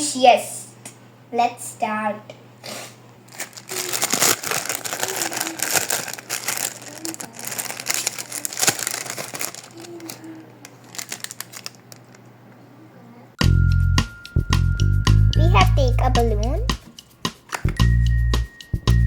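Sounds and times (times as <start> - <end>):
packaging rustling: 3.3 - 12.3.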